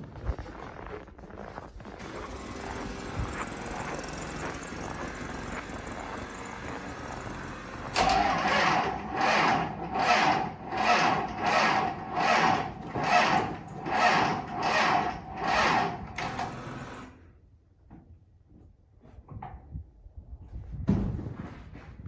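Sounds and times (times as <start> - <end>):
diesel engine cranking: 1.8 - 17.2.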